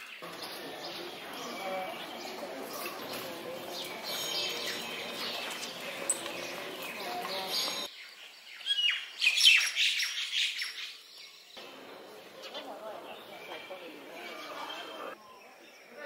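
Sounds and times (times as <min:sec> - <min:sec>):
birds chirping: 0:00.0 - 0:16.0
crowd murmur: 0:00.2 - 0:07.9, 0:11.6 - 0:15.2.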